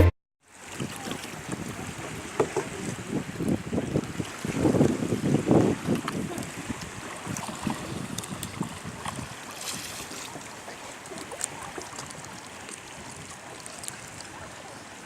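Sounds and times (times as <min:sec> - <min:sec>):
water splashing around kayak: 0:00.0 - 0:15.0
wind noise on microphone: 0:00.7 - 0:10.4.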